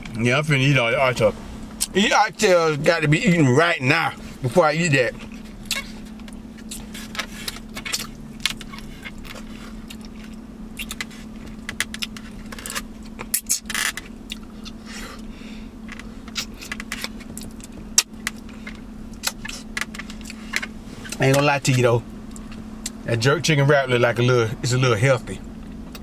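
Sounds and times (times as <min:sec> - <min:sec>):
low steady hum: 0:00.0 - 0:26.0
chewing and lip smacking: 0:05.2 - 0:14.9, 0:16.0 - 0:23.0.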